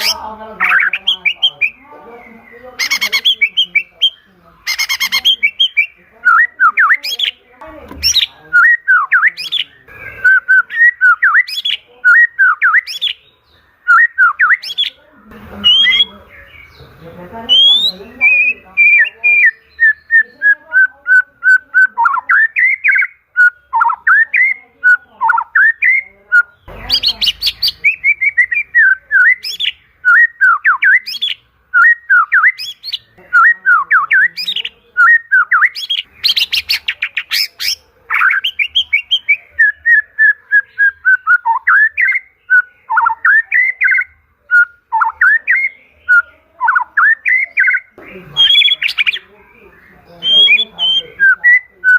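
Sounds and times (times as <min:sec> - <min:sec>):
bird singing whistled phrases: 0:00.0 - 0:01.8, 0:02.4 - 0:07.4, 0:08.0 - 0:15.0, 0:15.6 - 0:16.8, 0:17.5 - 0:49.2, 0:50.0 - 0:51.9
bird harsh rattling chatter: 0:02.7 - 0:05.9.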